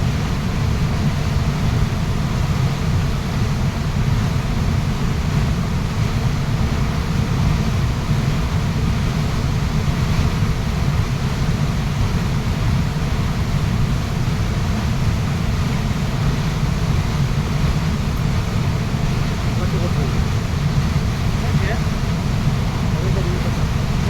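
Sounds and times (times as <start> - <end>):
waterfall rushing: 16.0 - 24.0.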